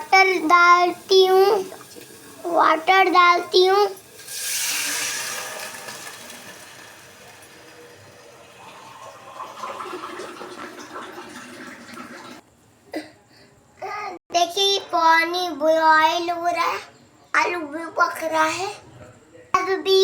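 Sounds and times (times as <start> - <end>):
water pouring into a pot: 0.0 - 12.4
bubbling and splashing: 3.9 - 12.4.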